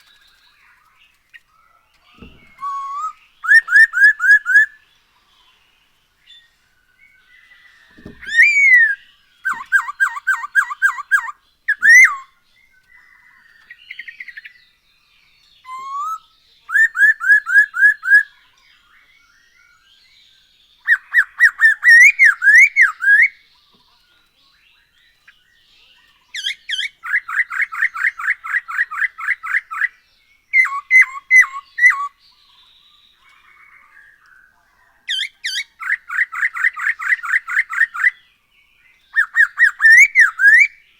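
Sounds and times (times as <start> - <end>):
laughingthrush singing whistled notes: 2.0 - 4.9, 6.3 - 14.6, 15.5 - 23.5, 24.8 - 40.9.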